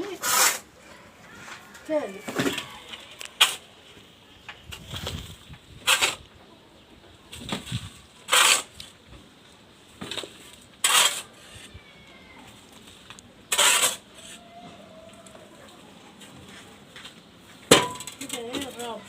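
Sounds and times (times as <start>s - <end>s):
sand scraping into bucket: 0.0s - 0.7s, 7.6s - 9.0s, 10.8s - 11.7s, 13.5s - 14.5s.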